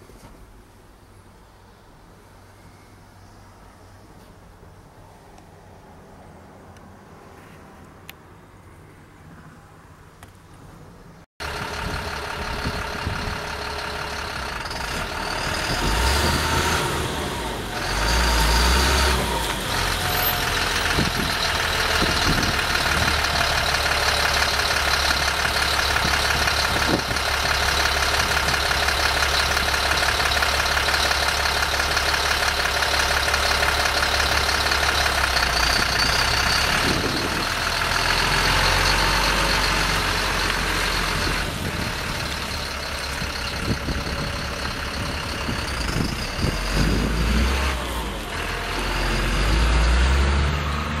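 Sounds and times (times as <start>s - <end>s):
truck engine running: 11.4s - 51.0s.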